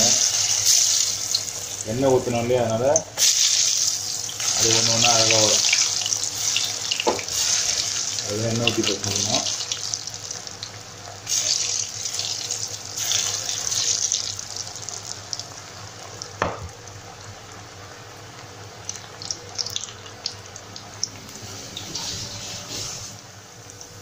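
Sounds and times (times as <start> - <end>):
food deep-frying in oil: 0.0 - 24.0
oil crackling and popping: 2.8 - 17.6, 18.3 - 21.4
knock: 7.0 - 7.2, 16.4 - 16.7.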